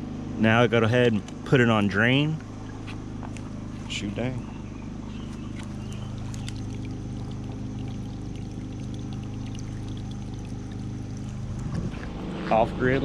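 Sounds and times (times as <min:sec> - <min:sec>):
steady low hum: 0:00.0 - 0:13.0
water pouring from drain hose: 0:05.5 - 0:11.9.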